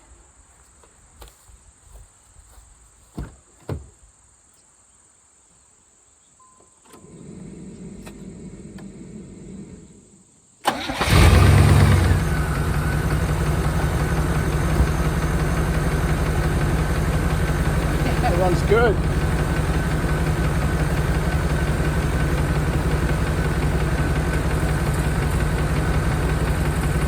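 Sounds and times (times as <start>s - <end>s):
car engine starting and idling: 6.9s - 27.0s
engine ticking: 10.7s - 27.0s.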